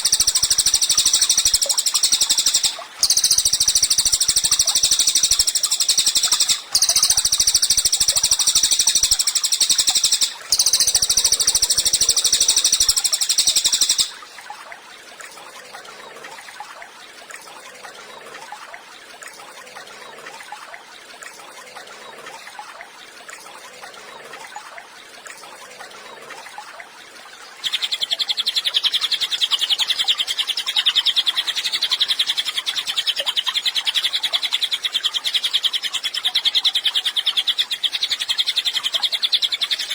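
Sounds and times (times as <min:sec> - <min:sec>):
songbird singing rapid trills: 0:00.0 - 0:14.2, 0:27.6 - 0:39.9.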